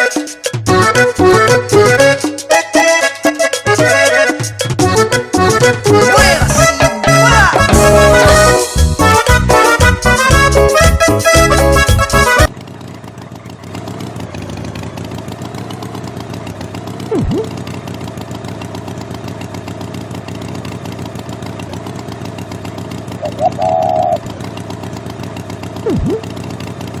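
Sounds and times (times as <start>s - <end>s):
horn honk: 0.0s - 12.5s
small engine running: 0.0s - 27.0s.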